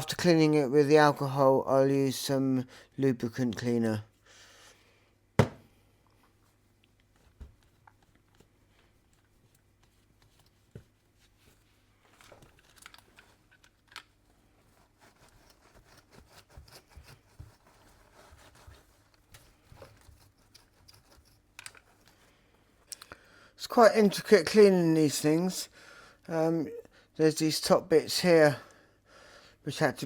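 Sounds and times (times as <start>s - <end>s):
faint scraping and rustling: 5.9s - 22.9s.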